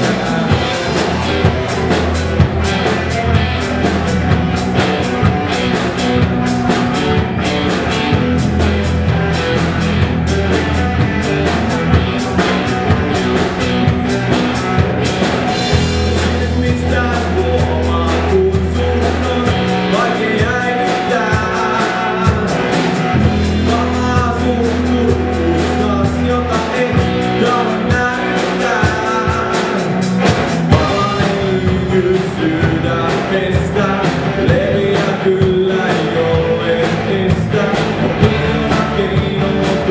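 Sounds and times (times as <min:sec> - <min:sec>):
person singing: 0:00.0 - 0:07.3, 0:15.5 - 0:39.9
drum kit beats: 0:00.0 - 0:39.9
electric guitar: 0:00.0 - 0:39.9
low bass notes: 0:00.0 - 0:39.9.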